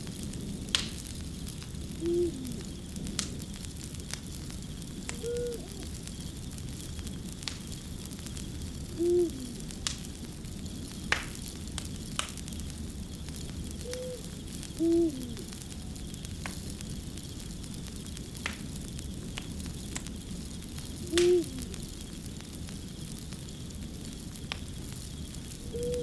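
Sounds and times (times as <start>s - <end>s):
fire crackling: 0.0s - 26.0s
owl hooting: 1.9s - 2.7s, 5.0s - 6.1s, 8.9s - 9.8s, 13.8s - 15.9s, 21.0s - 21.8s, 25.6s - 26.0s.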